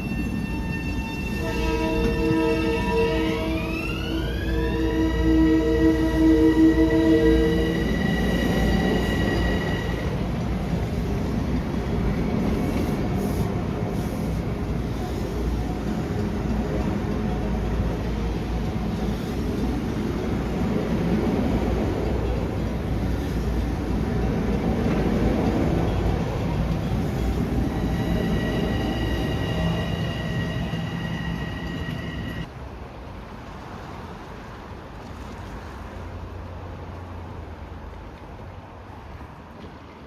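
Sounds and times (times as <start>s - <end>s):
train wheels rumbling on rails: 0.0s - 40.0s
train horn chord: 1.4s - 10.2s.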